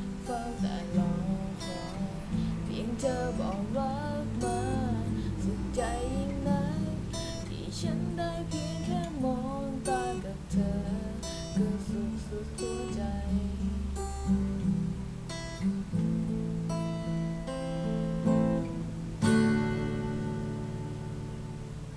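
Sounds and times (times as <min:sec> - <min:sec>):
acoustic guitar strummed and picked: 0:00.0 - 0:21.9.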